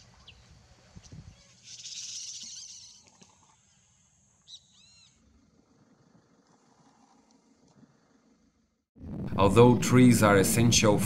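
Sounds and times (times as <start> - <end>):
birds chirping: 0.0 - 8.4.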